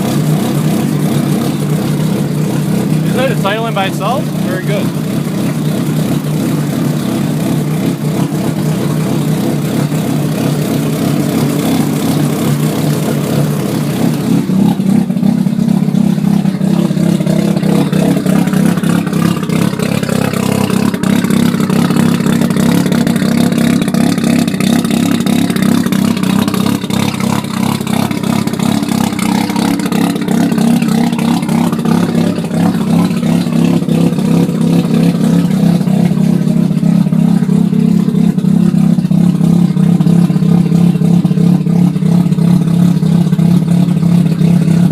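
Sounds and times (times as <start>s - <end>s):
rotary engine running: 0.0s - 44.9s.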